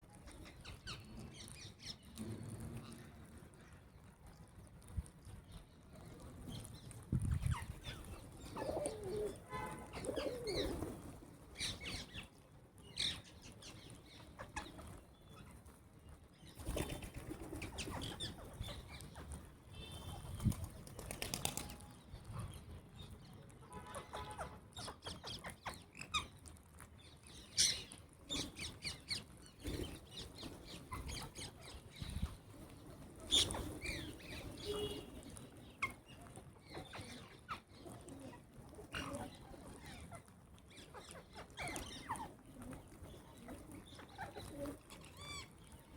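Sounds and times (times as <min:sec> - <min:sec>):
wings flapping: 0:16.6 - 0:18.6, 0:20.1 - 0:21.9
short bird calls: 0:34.6 - 0:35.1.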